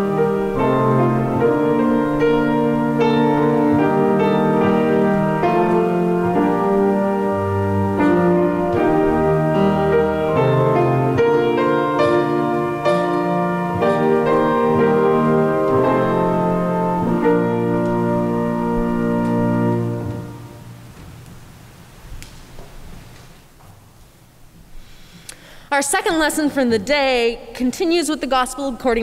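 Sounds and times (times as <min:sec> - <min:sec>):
slow keyboard chords: 0:00.0 - 0:21.7.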